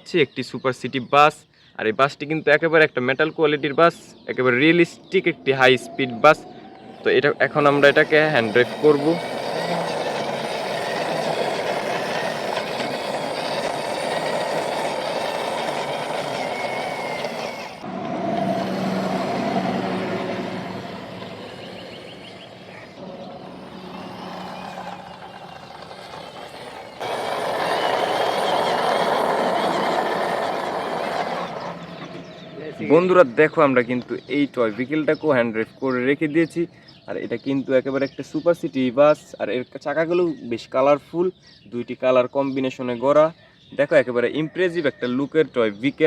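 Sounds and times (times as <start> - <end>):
toy bus running noise: 5.8 - 33.7.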